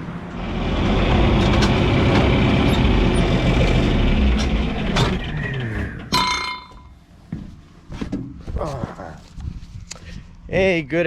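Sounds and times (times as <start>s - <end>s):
high squeal: 5.2s - 6.2s.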